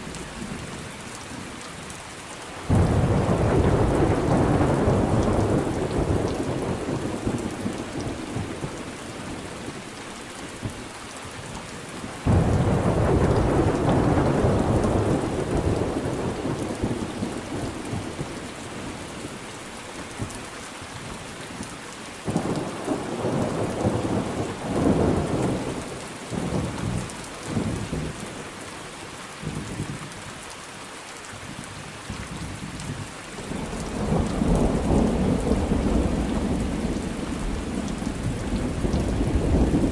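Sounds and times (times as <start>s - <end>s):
steady rain falling: 0.0s - 39.9s
rolling thunder: 2.7s - 8.8s, 12.2s - 18.4s, 33.5s - 39.9s
thunderclap: 33.5s - 39.9s.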